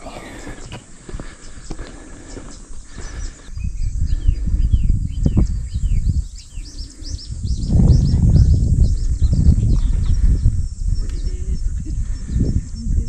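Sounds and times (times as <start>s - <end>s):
small bird chirping: 2.5s - 13.0s
loud low rumble: 7.3s - 13.0s.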